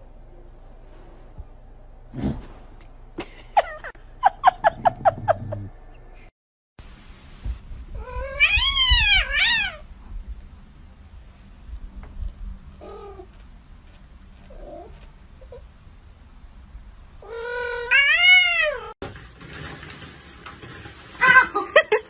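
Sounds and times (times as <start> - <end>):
cat meowing: 8.0 - 9.8, 17.2 - 18.9.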